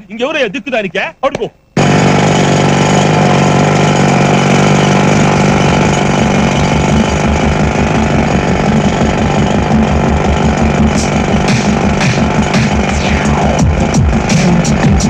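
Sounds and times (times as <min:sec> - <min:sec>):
engine-like mechanical noise: 0:05.2 - 0:15.0.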